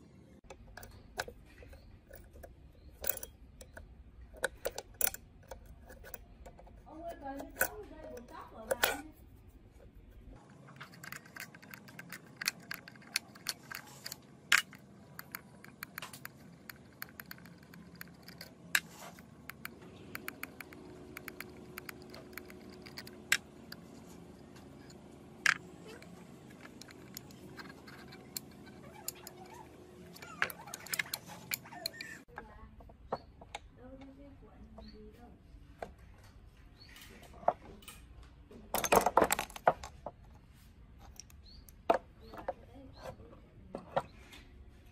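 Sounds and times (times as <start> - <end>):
metal parts clinking: 0.5 - 9.2, 10.4 - 32.2, 38.7 - 40.0.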